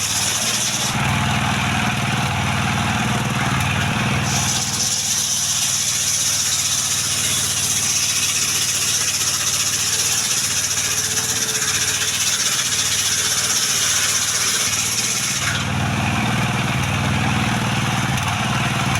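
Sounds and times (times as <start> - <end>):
saw blade hissing: 0.0 - 1.0, 4.2 - 15.7
sawmill engine hum: 0.0 - 18.9.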